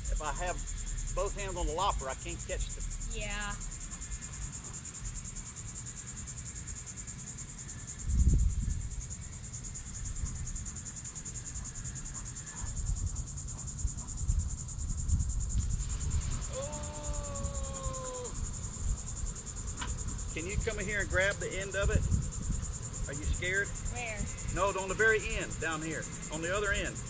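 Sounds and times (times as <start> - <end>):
insects chirring: 0.0 - 27.0
dull low thump: 14.1 - 16.4.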